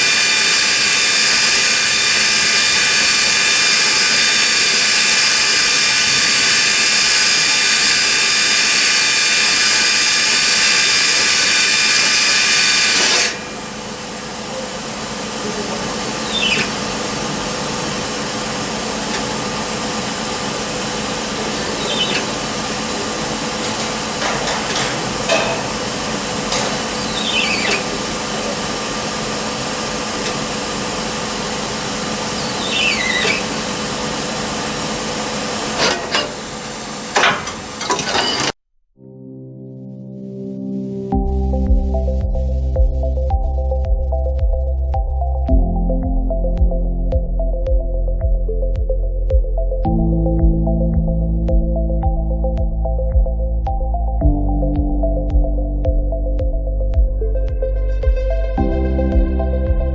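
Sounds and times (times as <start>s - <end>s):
lathe machine whine: 0.0s - 38.6s
short falling squeal: 32.4s - 33.6s.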